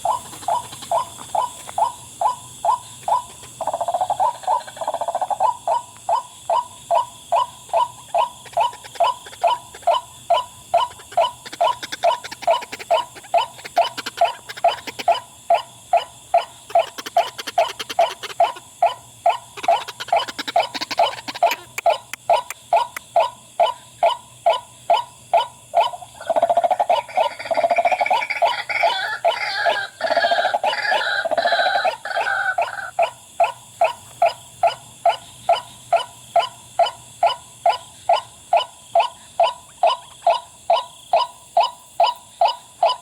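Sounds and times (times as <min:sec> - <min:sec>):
waterhen calling harsh notes: 0:26.8 - 0:32.9.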